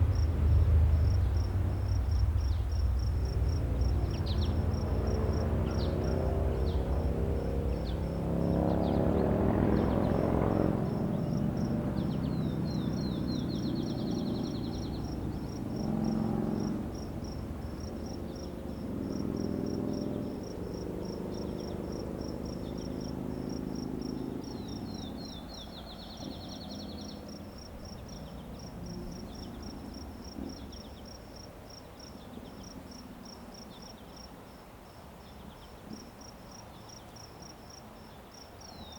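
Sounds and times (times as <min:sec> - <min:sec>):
low rumble with hum: 0:00.0 - 0:23.3
crickets chirping: 0:00.0 - 0:38.9.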